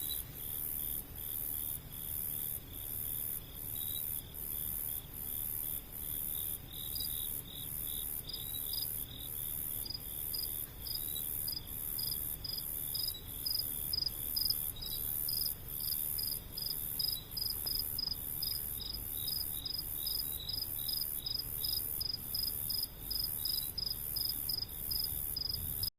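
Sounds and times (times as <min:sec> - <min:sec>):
low background noise: 0:00.0 - 0:25.9
high pulsing insect trill: 0:03.2 - 0:25.9
lower insect chirps: 0:06.4 - 0:25.6.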